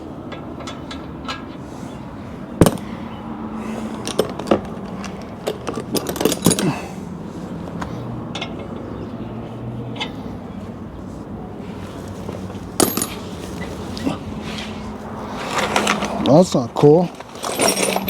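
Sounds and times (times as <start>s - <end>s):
metal hand tools clinking: 3.8s - 6.9s, 12.8s - 14.2s, 17.2s - 18.0s.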